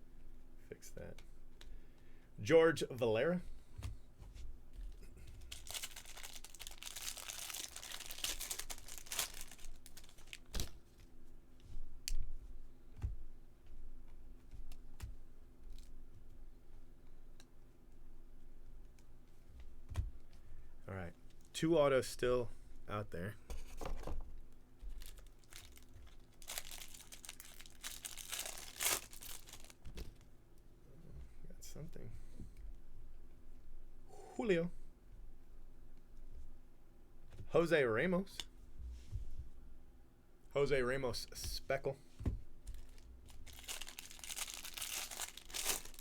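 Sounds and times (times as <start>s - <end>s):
wrapper crinkling and tearing: 5.4s - 10.9s, 24.9s - 29.9s, 42.7s - 46.0s.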